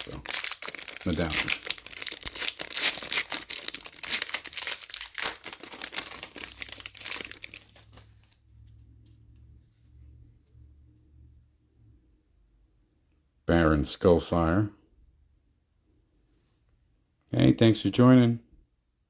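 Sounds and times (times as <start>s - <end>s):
foil wrapper tearing and crinkling: 0.0s - 8.3s.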